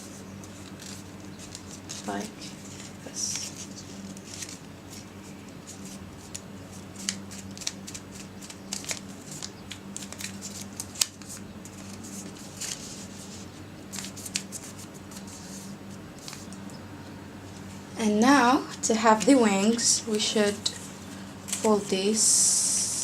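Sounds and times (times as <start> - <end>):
paper crinkling and creasing: 0.0 - 16.7, 20.5 - 22.0
steady low hum: 0.0 - 23.0.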